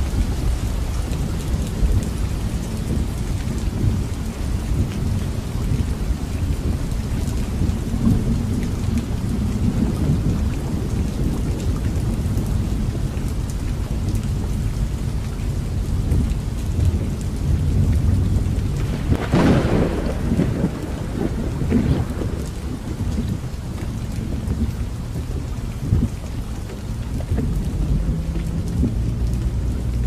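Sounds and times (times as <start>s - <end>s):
low thunder rumble: 0.0s - 30.0s
rain falling: 0.0s - 30.0s
crackling thunder surge: 15.9s - 30.0s.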